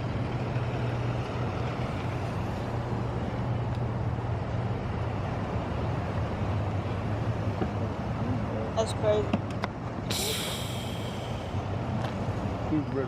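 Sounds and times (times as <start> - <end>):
vehicle engine idling: 10.0 - 13.0.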